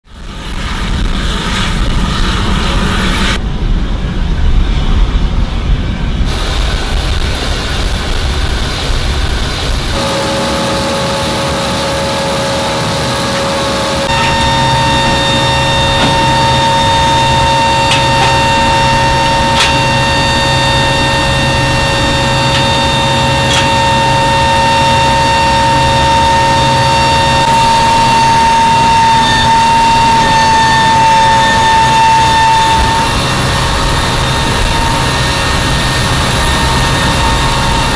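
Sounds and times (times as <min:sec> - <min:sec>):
jet engine rumble: 0:00.0 - 0:37.9
turbine whine: 0:00.0 - 0:37.9.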